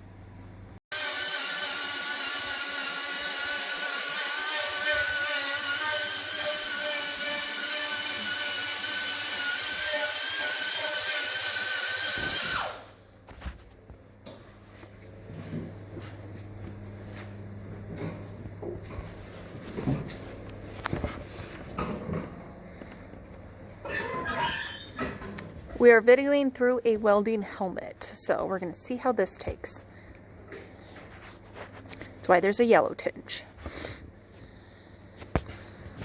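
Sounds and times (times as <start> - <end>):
electric grinder whining: 0.9 - 12.9
low steady hum: 12.6 - 36.0.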